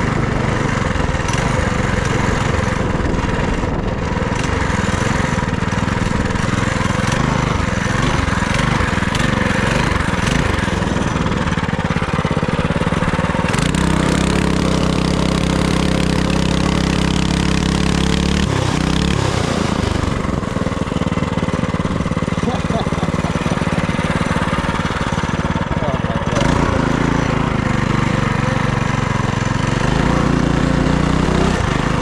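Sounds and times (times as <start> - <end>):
minibike engine running: 0.0 - 32.0
wind noise: 2.7 - 4.3.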